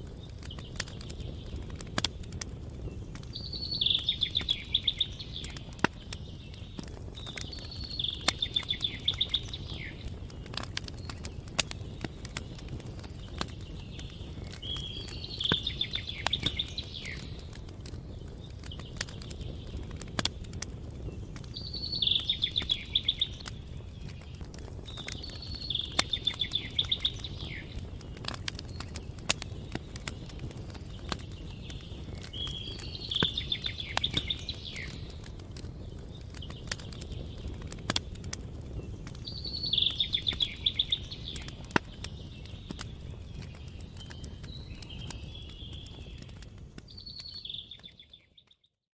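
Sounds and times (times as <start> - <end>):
wood fire crackling: 0.0 - 48.7
songbird trilling: 3.4 - 5.5, 7.6 - 10.0, 21.6 - 23.4, 25.2 - 27.7, 39.3 - 41.6.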